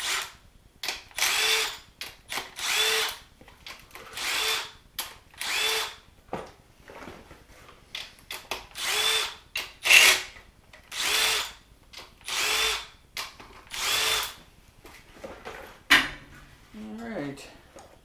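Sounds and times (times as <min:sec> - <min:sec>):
cordless driver motor whirring: 0:05.4 - 0:06.0.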